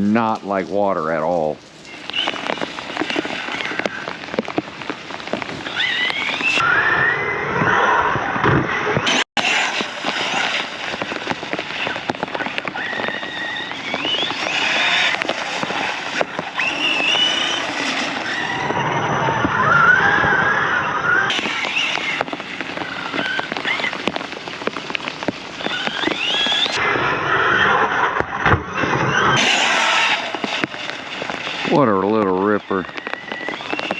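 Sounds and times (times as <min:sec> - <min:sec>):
tyres splashing through water: 0:09.1 - 0:18.8, 0:29.4 - 0:33.9.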